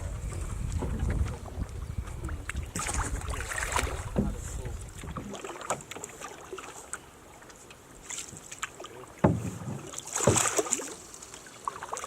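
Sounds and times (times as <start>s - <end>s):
paddle splashes and drips: 0.0s - 12.0s
small knocks on canoe: 0.3s - 6.0s, 8.2s - 10.8s.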